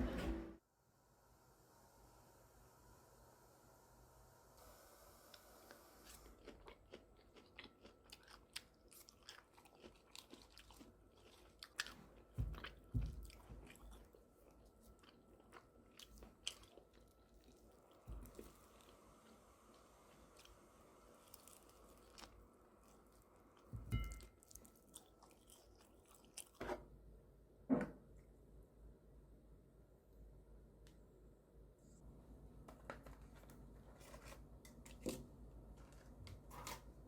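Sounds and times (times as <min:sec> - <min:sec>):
chewing and crunching food: 0:05.7 - 0:26.9.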